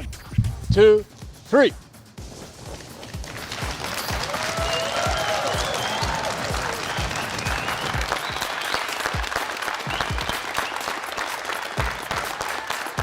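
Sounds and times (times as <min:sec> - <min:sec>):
low thumping beat: 0:00.0 - 0:02.2
crowd applauding: 0:03.1 - 0:13.0.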